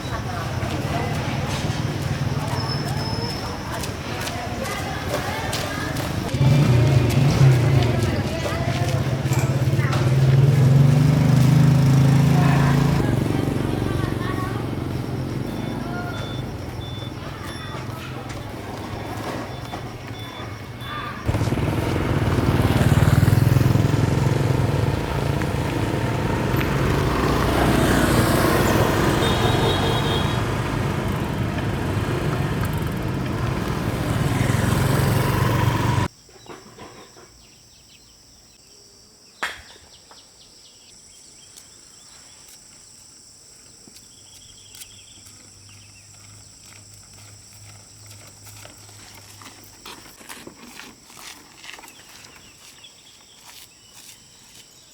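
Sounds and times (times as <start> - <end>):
quiet outdoor background: 2.1 - 54.9
vehicle engine running: 4.7 - 36.1
heavy rushing noise: 21.3 - 36.1.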